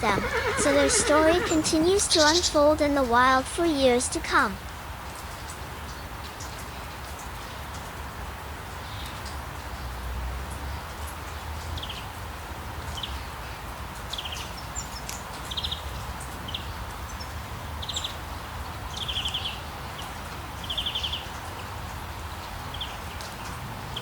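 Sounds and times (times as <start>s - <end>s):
small animals chirping and trilling: 0.0s - 4.4s.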